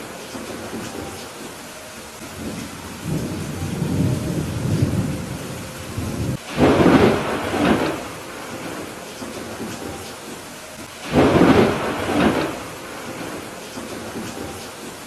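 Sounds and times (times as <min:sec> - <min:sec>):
steady rain: 0:00.0 - 0:15.0
thunder rumbling: 0:00.0 - 0:15.0
sharp thunder clap: 0:02.4 - 0:10.4, 0:11.0 - 0:14.6.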